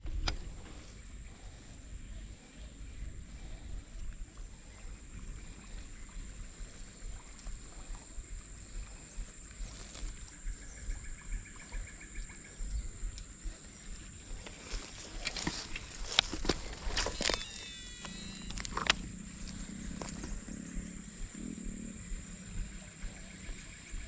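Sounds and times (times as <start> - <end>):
high-pitched insect drone: 1.0 - 24.0
rustling and handling noise: 12.6 - 20.6
sharp clicks and knocks: 14.4 - 19.1.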